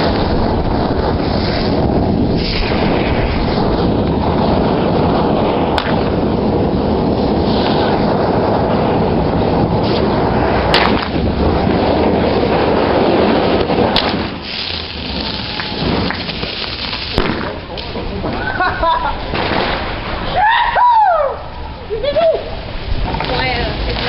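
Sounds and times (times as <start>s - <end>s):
sharp firework cracks: 0.0s - 8.2s, 9.6s - 12.4s, 13.1s - 18.1s, 19.2s - 20.3s
fireworks rumble: 0.0s - 20.5s, 21.5s - 24.0s.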